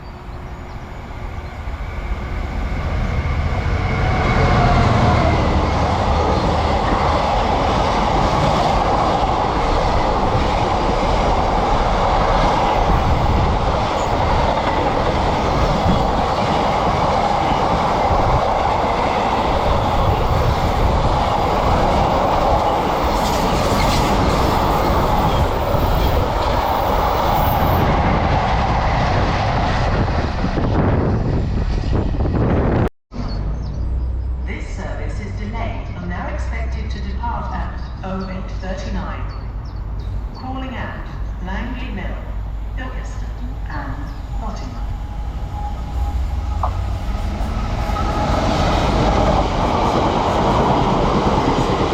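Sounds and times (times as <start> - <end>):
freight train wheels rumbling: 0.0 - 51.9.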